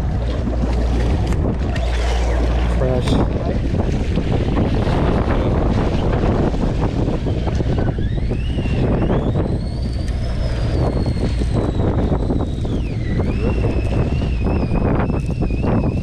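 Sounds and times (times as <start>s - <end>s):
boat engine rumbling: 0.0s - 16.0s
rising whine: 0.0s - 16.0s
wind noise on microphone: 0.0s - 16.0s.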